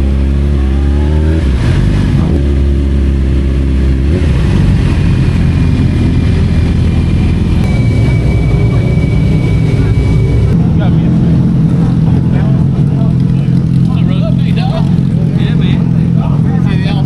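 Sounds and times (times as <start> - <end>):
motorcycle engine revving: 0.0 - 17.0
loud rushing noise: 4.0 - 13.0.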